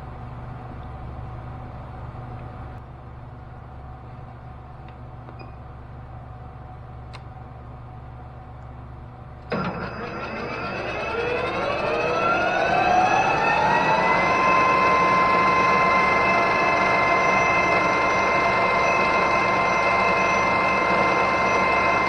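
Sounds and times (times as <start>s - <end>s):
metal lathe motor whine: 9.5s - 22.0s.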